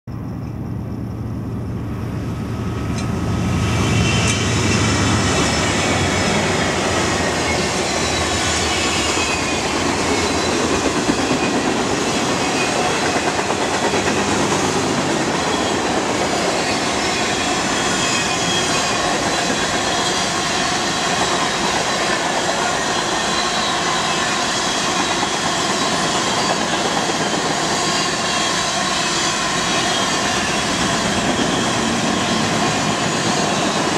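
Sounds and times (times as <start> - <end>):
diesel locomotive drone: 0.1 - 33.9
wheels rumbling on rail: 0.1 - 33.9.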